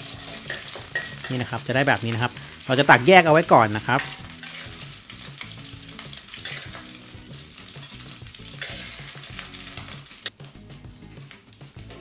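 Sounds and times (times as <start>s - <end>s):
metal spatula scraping wok: 0.0s - 1.4s, 3.4s - 10.3s
egg sizzling in oil: 0.0s - 12.0s.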